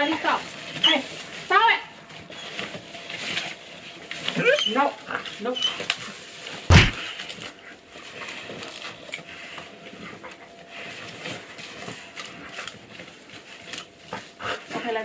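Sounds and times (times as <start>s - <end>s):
loud thump: 6.7s - 7.0s.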